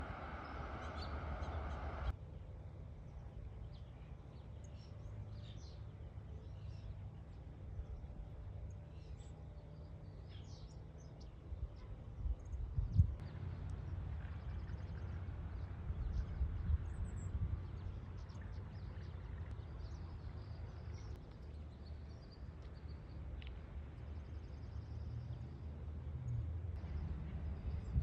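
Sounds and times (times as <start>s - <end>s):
low rumble: 0.0s - 2.1s
small birds chirping: 0.0s - 2.1s.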